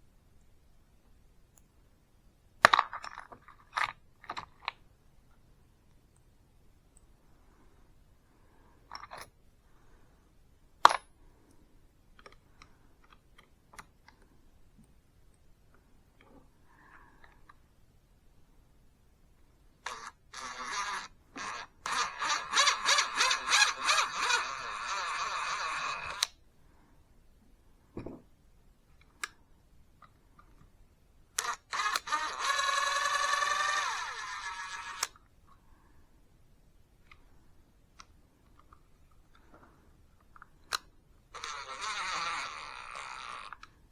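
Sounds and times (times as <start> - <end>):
drill trigger blips: 19.8 - 26.4, 31.4 - 35.2
power drill motor whine: 19.9 - 26.3, 31.4 - 35.1, 41.4 - 43.6.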